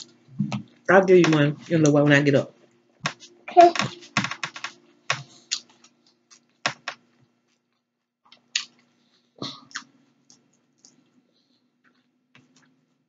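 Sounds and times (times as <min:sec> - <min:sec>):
faint steady hum: 0:00.0 - 0:13.0
person chewing with crunches: 0:05.2 - 0:06.6, 0:08.3 - 0:11.1.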